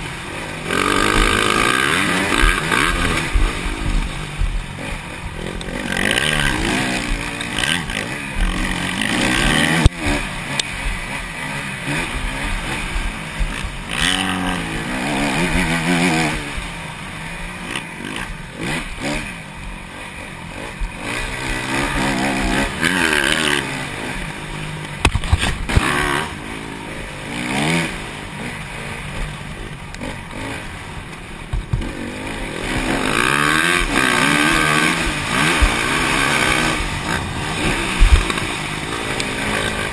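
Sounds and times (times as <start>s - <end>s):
motocross bikes revving: 0.0s - 39.9s.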